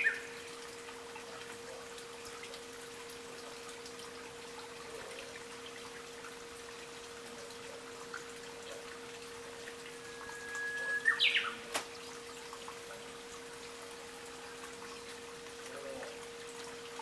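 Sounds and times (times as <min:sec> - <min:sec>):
faint trickle of water: 0:00.0 - 0:17.0
bush warbler singing: 0:10.4 - 0:11.6.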